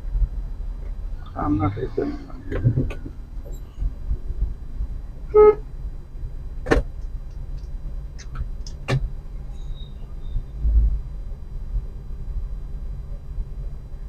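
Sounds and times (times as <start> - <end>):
car driving on road: 0.0 - 14.0
car horn toot: 5.3 - 5.6.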